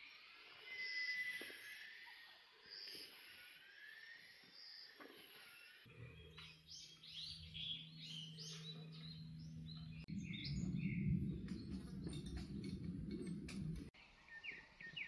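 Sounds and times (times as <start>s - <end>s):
bird chirping: 0.0s - 15.0s
faint low hum: 5.9s - 13.9s
low rumbling noise: 7.0s - 14.0s.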